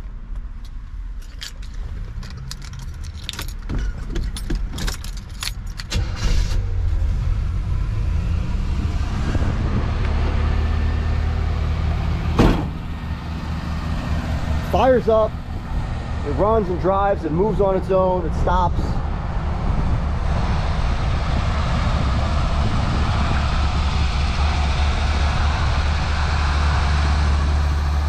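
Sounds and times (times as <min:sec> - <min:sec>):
keys jangling: 0:01.2 - 0:06.0
car engine idling: 0:10.8 - 0:28.0
loud thump: 0:12.3 - 0:13.1.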